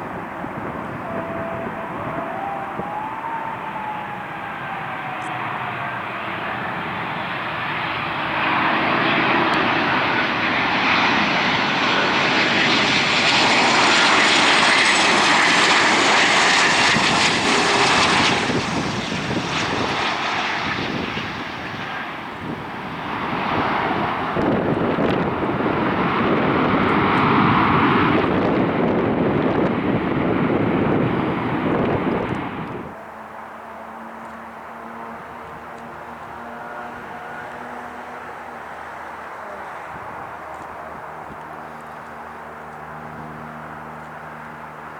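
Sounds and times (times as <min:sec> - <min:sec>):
jet engine roar with whine: 0:00.0 - 0:44.9.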